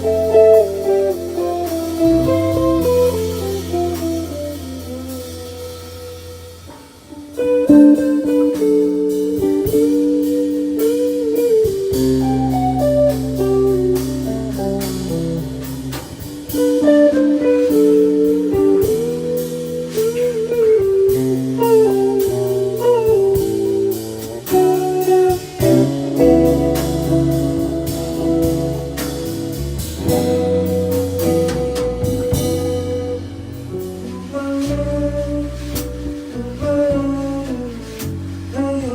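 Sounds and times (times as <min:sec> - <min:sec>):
bass line: 0:00.0 - 0:38.9
drums: 0:00.0 - 0:38.9
electric guitar melody: 0:00.0 - 0:38.9.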